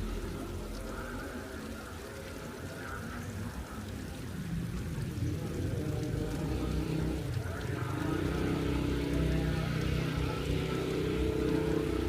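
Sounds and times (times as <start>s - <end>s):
rain falling: 0.0s - 12.0s
low rumble: 4.1s - 12.0s.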